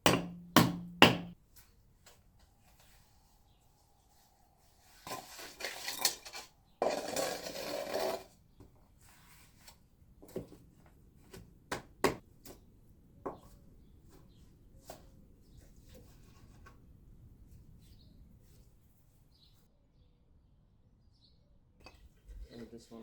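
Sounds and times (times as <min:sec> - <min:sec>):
sharp knocks on stone: 0:00.0 - 0:01.4
rough scraping on stone: 0:04.8 - 0:08.4.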